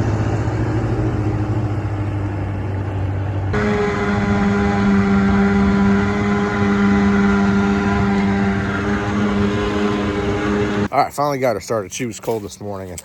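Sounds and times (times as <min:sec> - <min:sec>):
boat motor idling: 0:03.5 - 0:11.0.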